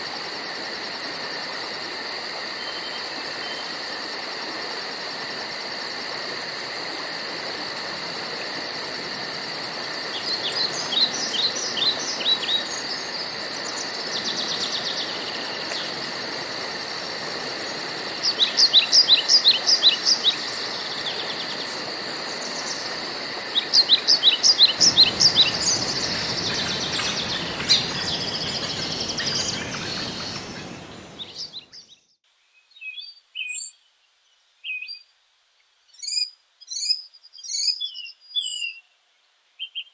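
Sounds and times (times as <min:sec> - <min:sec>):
steady hiss: 0:00.0 - 0:31.7
insect trill: 0:00.0 - 0:31.9
songbird singing: 0:07.5 - 0:39.9.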